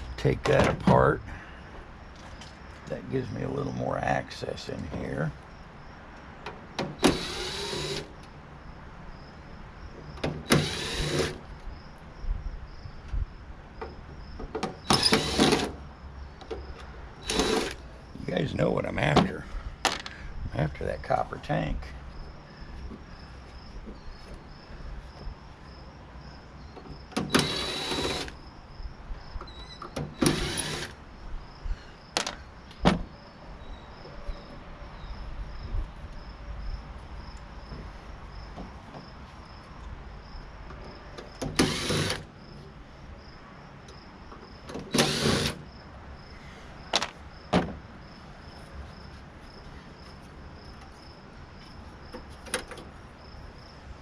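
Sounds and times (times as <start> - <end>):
power tool bursts: 7.0 - 8.1, 10.5 - 11.4, 14.9 - 15.7, 17.2 - 17.8, 27.2 - 28.4, 30.2 - 31.0, 41.6 - 42.2, 44.9 - 45.6.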